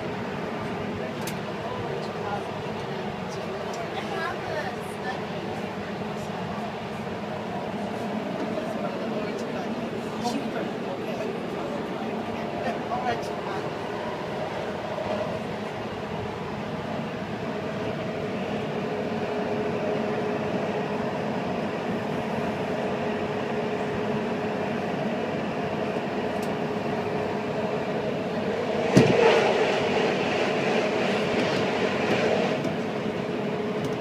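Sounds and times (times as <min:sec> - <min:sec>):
constant train whine: 0:00.0 - 0:34.0
train wheels rumbling on track: 0:00.0 - 0:34.0
rushing air: 0:28.4 - 0:33.6
loud thump: 0:28.9 - 0:29.2.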